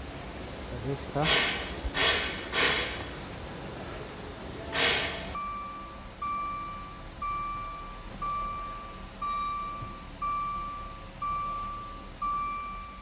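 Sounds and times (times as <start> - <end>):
electronic warning beeps: 5.4 - 13.0.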